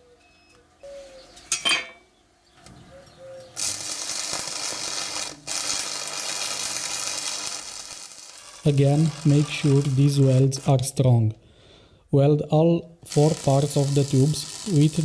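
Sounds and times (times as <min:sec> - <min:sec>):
welding arc crackling and hissing: 0:03.6 - 0:10.9, 0:13.0 - 0:15.0.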